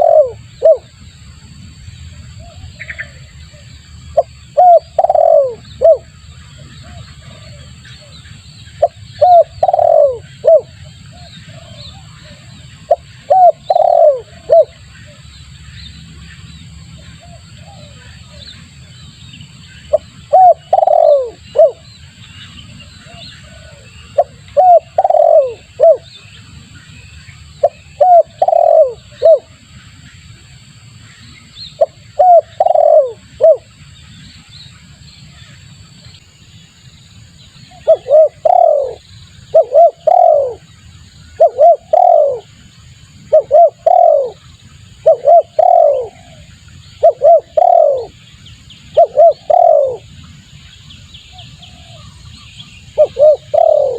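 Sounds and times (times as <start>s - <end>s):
dove cooing: 0.0s - 1.0s, 2.4s - 15.2s, 17.0s - 18.4s, 19.9s - 21.9s, 23.0s - 26.2s, 27.6s - 29.5s, 31.8s - 33.7s, 37.7s - 40.7s, 41.3s - 42.6s, 43.3s - 44.4s, 45.0s - 48.2s, 48.9s - 50.1s, 52.9s - 53.9s.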